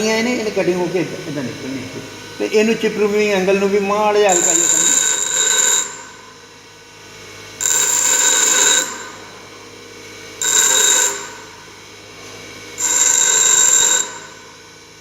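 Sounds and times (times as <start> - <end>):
steel tool grinding on wheel: 0.0 - 6.1, 12.8 - 14.4
grinder motor hum: 0.0 - 15.0.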